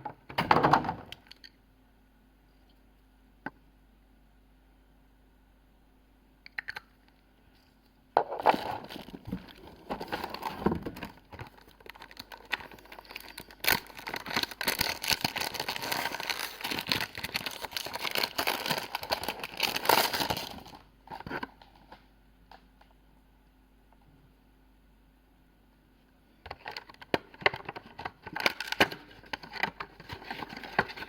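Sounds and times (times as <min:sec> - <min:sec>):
packaging crinkling: 0:08.3 - 0:22.0, 0:26.5 - 0:31.0.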